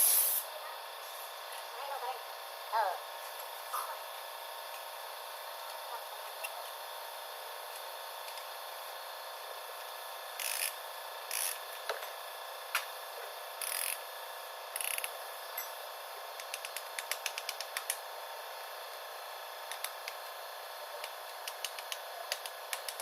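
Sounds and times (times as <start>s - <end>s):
steady hiss: 0.0s - 1.5s
sharp clicks: 16.4s - 18.0s, 21.4s - 23.0s.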